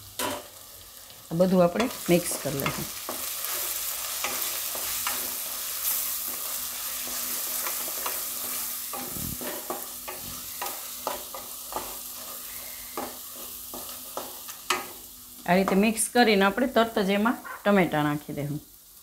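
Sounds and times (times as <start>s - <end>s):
spices sizzling in hot oil: 0.0s - 19.0s
spatula scraping pan: 1.8s - 15.0s.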